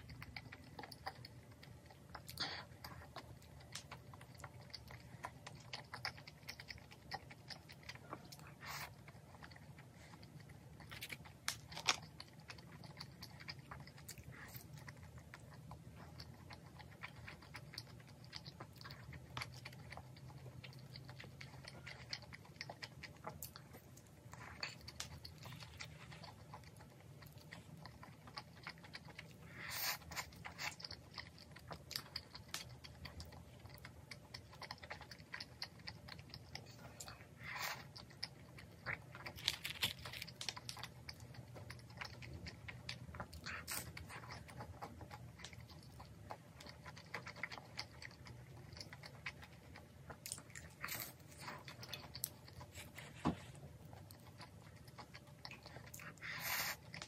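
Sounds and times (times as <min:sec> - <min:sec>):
chewing clicks: 0:00.0 - 0:57.0
chewing fried snacks: 0:00.0 - 0:57.0
crisp bites: 0:39.3 - 0:40.8.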